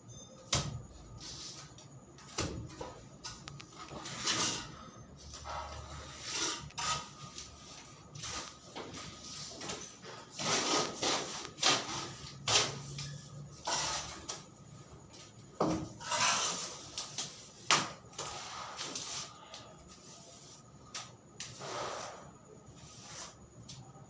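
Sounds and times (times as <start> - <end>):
scraping and rubbing strokes: 22.8 - 23.4.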